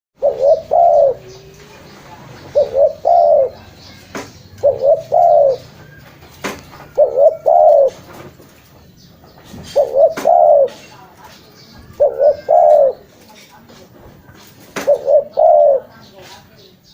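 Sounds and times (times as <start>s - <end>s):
dove cooing: 0.2s - 8.4s, 9.5s - 10.9s, 11.8s - 13.2s, 14.8s - 16.1s.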